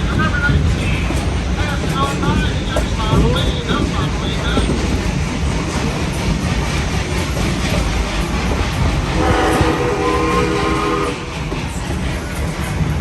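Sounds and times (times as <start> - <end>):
train rumbling and rattling: 0.0 - 13.0
train whistle chord: 9.2 - 11.3.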